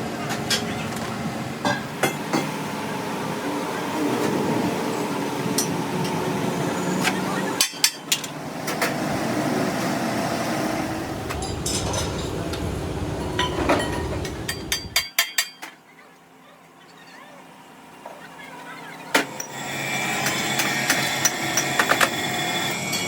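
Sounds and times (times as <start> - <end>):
workshop noise: 0.0 - 16.4, 17.8 - 23.0
hammer striking metal: 13.4 - 15.6.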